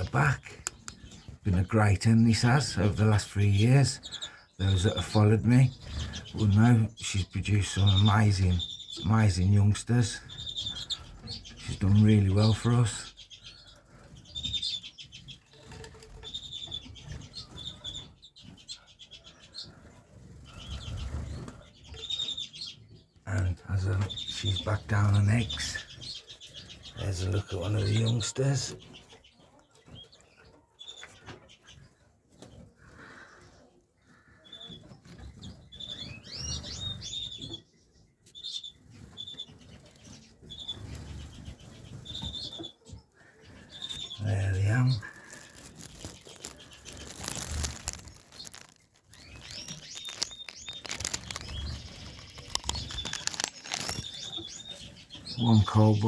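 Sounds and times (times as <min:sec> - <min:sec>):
birds chirping: 0:00.0 - 0:56.0
wings fluttering: 0:43.6 - 0:54.6.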